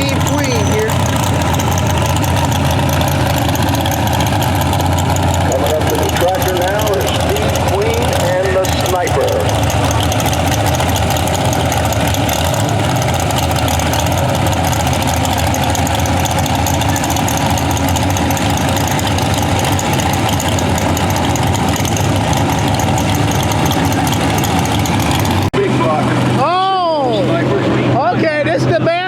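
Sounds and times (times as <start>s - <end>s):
tractor engine idling loudly: 0.0s - 29.0s.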